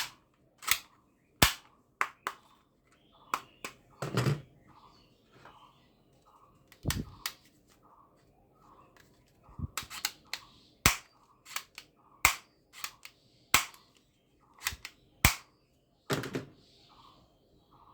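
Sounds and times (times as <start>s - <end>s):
toy gun snaps: 0.0s - 2.4s, 9.8s - 13.8s, 14.6s - 15.5s.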